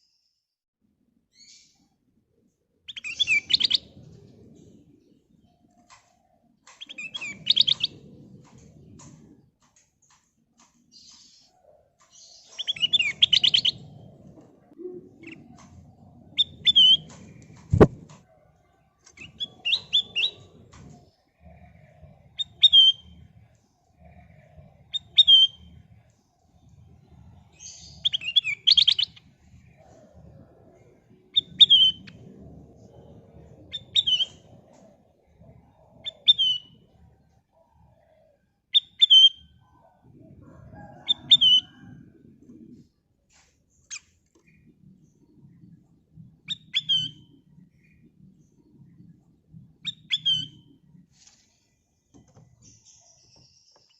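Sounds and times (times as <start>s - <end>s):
faint low rumble: 29.1s - 38.2s.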